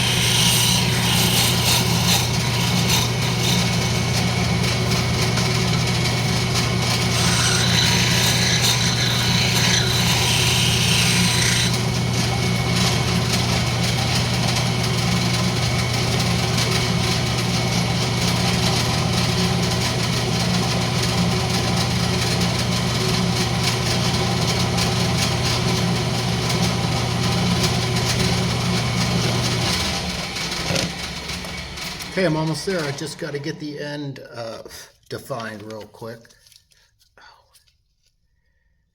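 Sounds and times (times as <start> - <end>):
turning tool scraping wood: 0.0 - 15.9, 26.5 - 33.6
wood lathe motor hum: 0.0 - 33.6.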